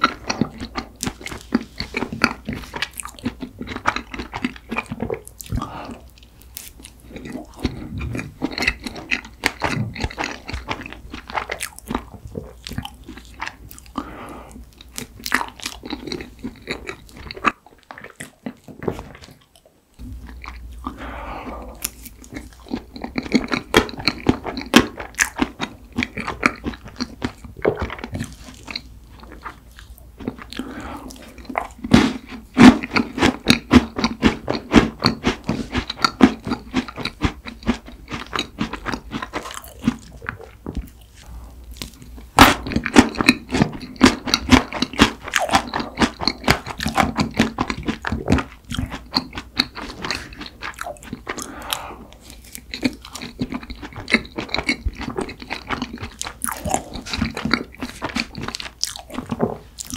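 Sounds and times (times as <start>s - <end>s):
chewing: 0.0s - 59.9s
crunching: 14.7s - 59.9s.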